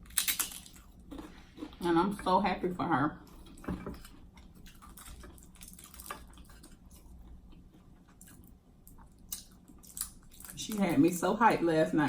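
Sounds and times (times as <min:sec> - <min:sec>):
person chewing wet food: 0:00.0 - 0:01.8, 0:03.2 - 0:10.6.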